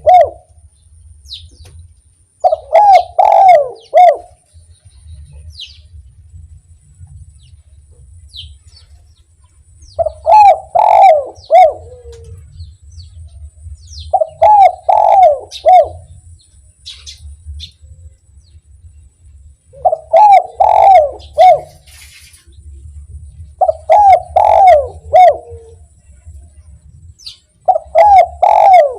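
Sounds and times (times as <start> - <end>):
dove cooing: 0.0 - 0.6, 2.4 - 4.4, 9.9 - 12.5, 14.0 - 16.2, 19.7 - 22.2, 23.6 - 25.9, 27.6 - 28.9
small birds chirping: 0.0 - 6.0, 7.2 - 26.0, 26.9 - 28.9.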